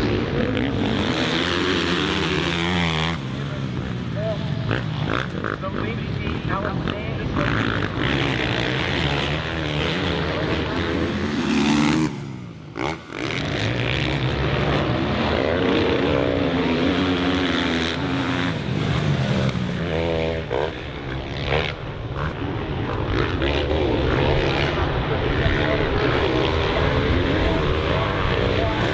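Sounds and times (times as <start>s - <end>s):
motocross bike engine revving: 7.4s - 21.7s.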